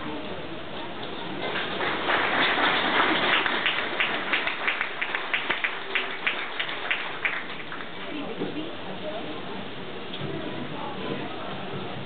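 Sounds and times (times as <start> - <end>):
crowd applauding: 1.4 - 8.1.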